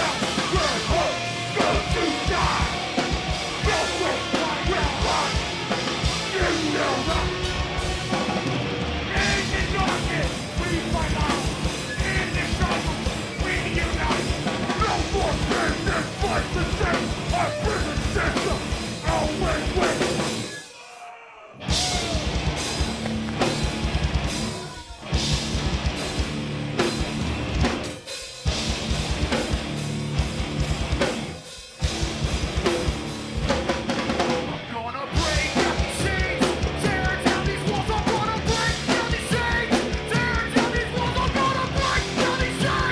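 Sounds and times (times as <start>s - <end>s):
distorted guitars and bass: 0.0s - 20.6s, 21.6s - 42.9s
heavy pounding drum kit: 0.0s - 20.9s, 21.6s - 42.9s.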